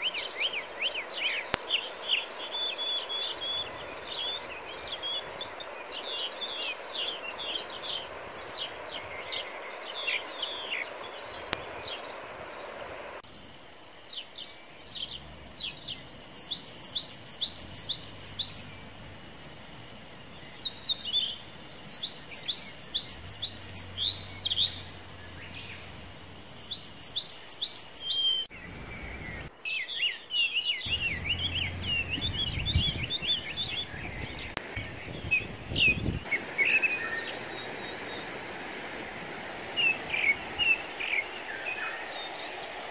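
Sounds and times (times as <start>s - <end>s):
faint outdoor hiss: 0.0s - 42.9s
birds chirping and singing: 13.3s - 19.0s, 20.2s - 37.6s
low rumble: 28.5s - 29.5s, 30.9s - 34.6s.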